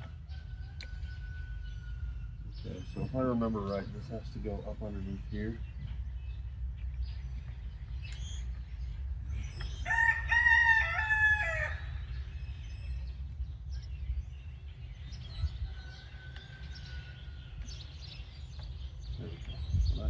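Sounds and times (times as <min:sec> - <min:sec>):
rooster crowing: 0:00.0 - 0:02.5, 0:09.8 - 0:12.3, 0:15.3 - 0:17.8
steady low hum: 0:00.0 - 0:20.0.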